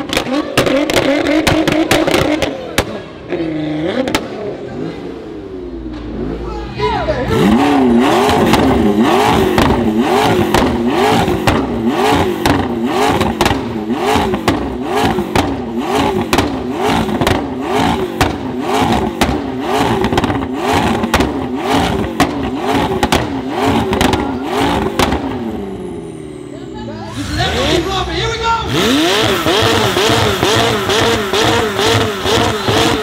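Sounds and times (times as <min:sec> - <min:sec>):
car engine revving in blips: 0:00.0 - 0:06.4, 0:07.3 - 0:26.5, 0:27.1 - 0:33.0
exhaust crackles: 0:07.2 - 0:26.4, 0:27.0 - 0:33.0.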